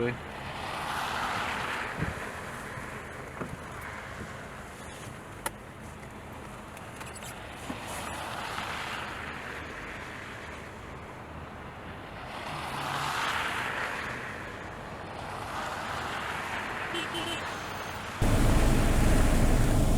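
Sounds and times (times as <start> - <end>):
tyres hissing on snowy road: 15.5 - 19.9.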